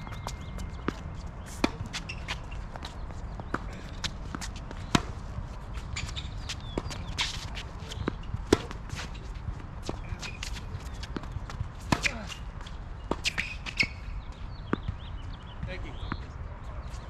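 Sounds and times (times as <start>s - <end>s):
footsteps on court: 0.0s - 17.0s
racquet hitting tennis ball: 9.8s - 12.4s.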